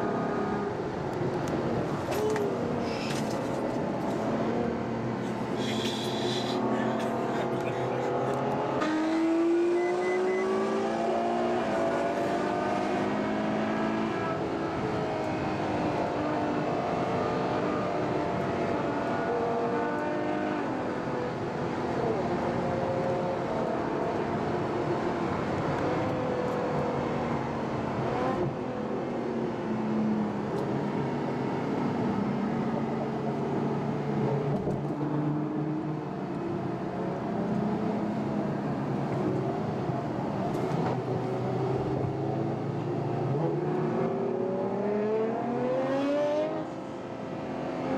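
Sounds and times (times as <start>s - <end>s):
car engines running: 0.0s - 22.8s.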